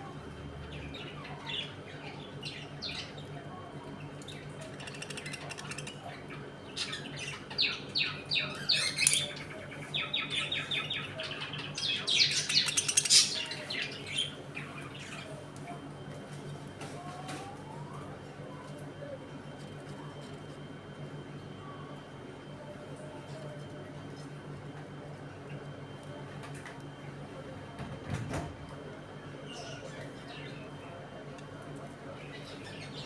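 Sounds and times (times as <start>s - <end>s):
budgerigars chirping and chattering: 4.2s - 15.3s.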